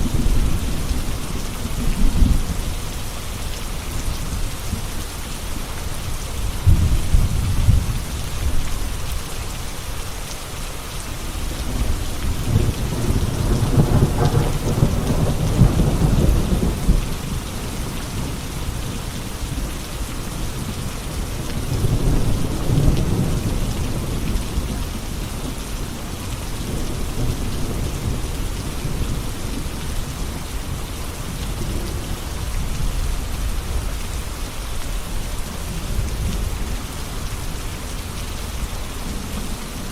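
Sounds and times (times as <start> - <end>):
steady rain falling: 0.0 - 39.9
thunder rolling: 12.2 - 17.0.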